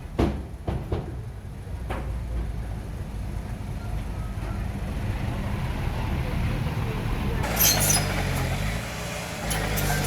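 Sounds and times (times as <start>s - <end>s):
bulldozer diesel engine droning: 7.0s - 10.0s.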